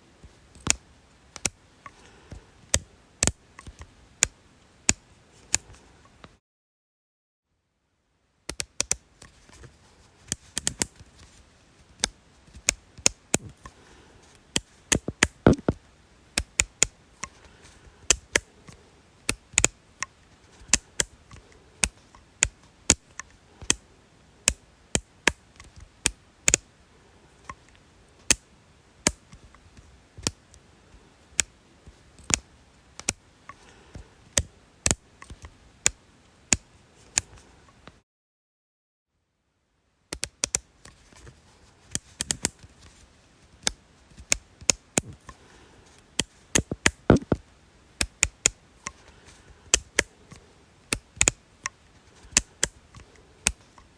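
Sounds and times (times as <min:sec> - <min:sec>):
sharp dry clicks: 0:00.5 - 0:02.0, 0:14.5 - 0:15.8, 0:18.0 - 0:23.8, 0:32.2 - 0:38.0, 0:40.1 - 0:41.0, 0:46.1 - 0:47.4, 0:48.0 - 0:53.9.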